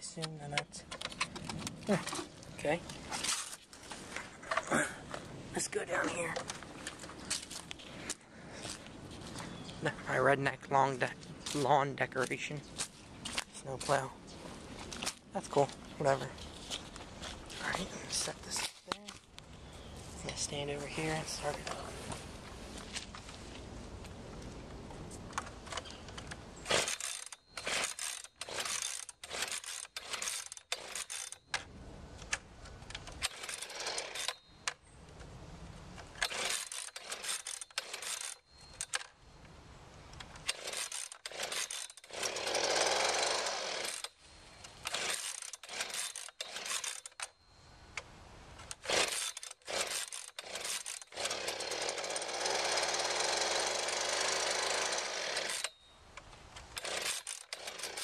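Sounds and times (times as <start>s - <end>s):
recoil pull cord rips: 25.7s - 31.6s, 36.2s - 39.1s, 40.2s - 44.2s, 44.8s - 47.3s, 48.6s - 55.8s, 56.6s - 58.0s
leaf blower engine running: 41.4s - 44.0s, 48.9s - 55.7s, 56.8s - 58.0s.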